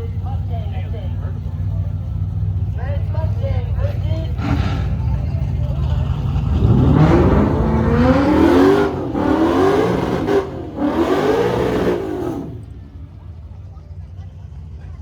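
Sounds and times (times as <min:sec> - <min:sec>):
car engine accelerating hard: 0:03.6 - 0:13.8.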